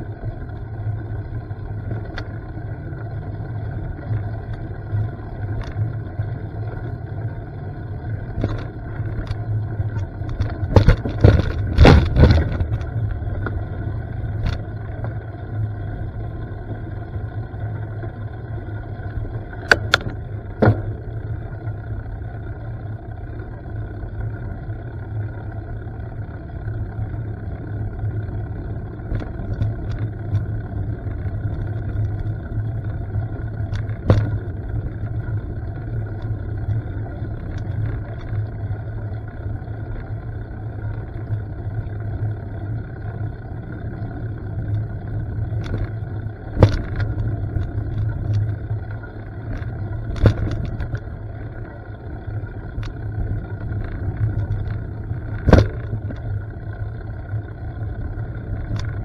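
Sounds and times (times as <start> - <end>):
bike tyre and wind noise: 0.0 - 59.0
bike knocks and rattles: 8.3 - 13.7, 19.6 - 21.4, 31.4 - 38.4, 45.4 - 51.5, 52.7 - 56.6.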